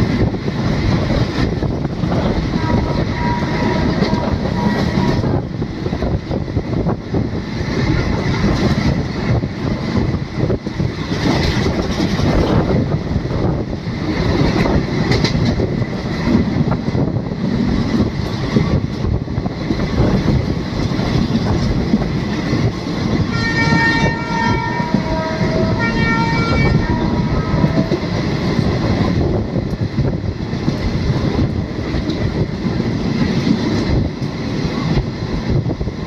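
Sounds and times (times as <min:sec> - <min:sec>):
train wheels rumbling on rails: 0:00.0 - 0:36.0
train horn: 0:02.2 - 0:05.5, 0:23.3 - 0:28.3.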